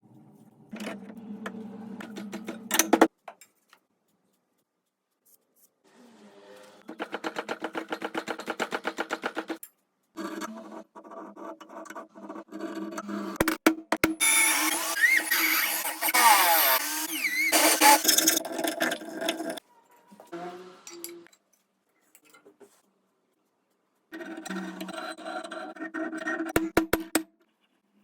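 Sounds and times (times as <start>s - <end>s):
electric power tool bursts: 14.2s - 18.4s.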